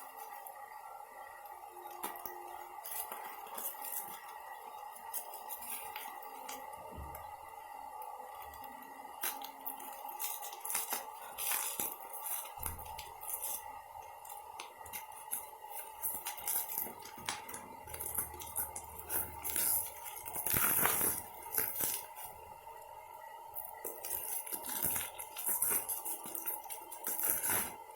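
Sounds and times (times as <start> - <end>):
hands handling packaging: 1.8 - 4.4, 9.2 - 22.4, 23.6 - 27.9.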